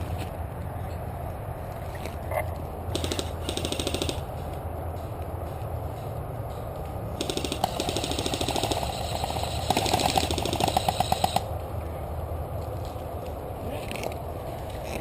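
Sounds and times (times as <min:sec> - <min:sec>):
airsoft gun firing full auto: 0:02.9 - 0:04.2, 0:07.2 - 0:11.5.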